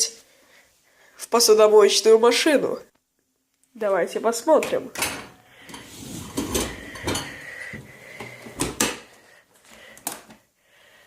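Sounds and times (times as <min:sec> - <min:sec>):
dishes clattering: 0:04.6 - 0:09.1.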